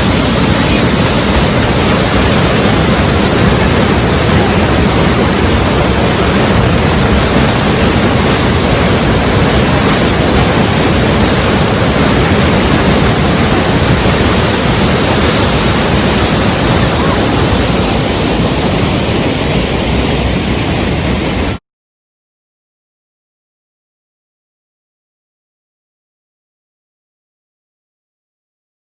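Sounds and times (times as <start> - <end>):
waterfall rushing: 0.0 - 21.6.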